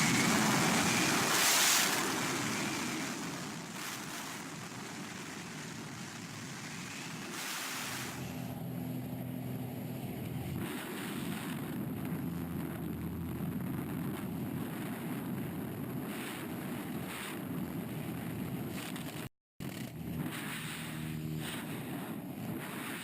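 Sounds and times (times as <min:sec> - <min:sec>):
wind on microphone: 0:00.0 - 0:19.3, 0:20.0 - 0:23.0
low engine drone: 0:06.8 - 0:23.0.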